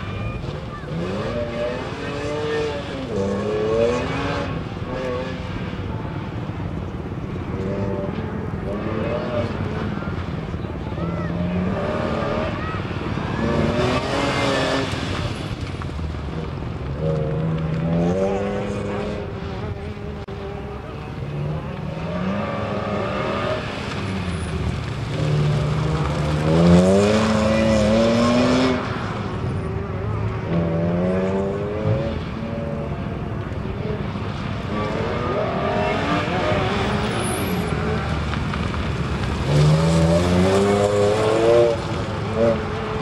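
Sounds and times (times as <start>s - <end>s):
car engine accelerating hard: 11.1s - 43.0s.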